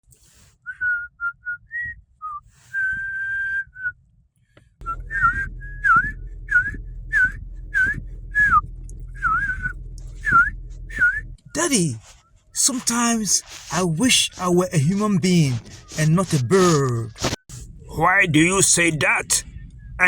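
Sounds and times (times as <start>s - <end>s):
whistled notes: 0.7s - 4.0s, 4.8s - 13.4s, 14.2s - 17.4s
low steady hum: 4.8s - 20.0s.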